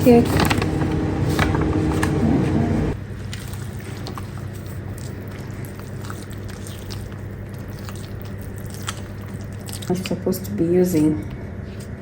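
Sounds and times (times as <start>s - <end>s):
low hum: 0.0s - 3.8s
batter squelching in bowl: 0.0s - 10.2s.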